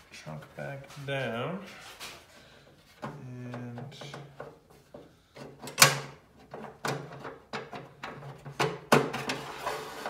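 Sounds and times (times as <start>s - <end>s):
sharp clicks and knocks: 3.0s - 9.4s.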